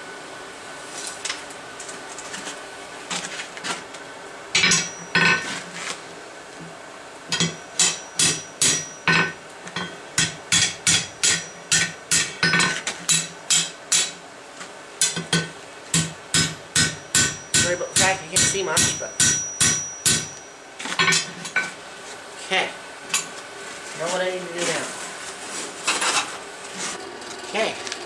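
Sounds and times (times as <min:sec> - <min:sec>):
hammer striking steel on anvil: 0:04.6 - 0:05.4, 0:07.3 - 0:14.2, 0:15.0 - 0:20.4.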